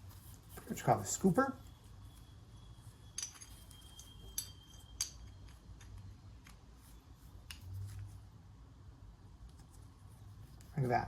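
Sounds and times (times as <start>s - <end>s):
metal engine parts clinking: 1.7s - 6.6s.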